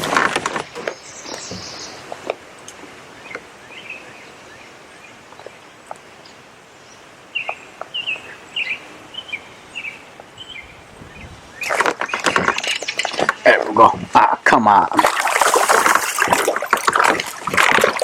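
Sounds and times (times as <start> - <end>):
bird chirping: 0.6 - 2.0, 3.1 - 13.5.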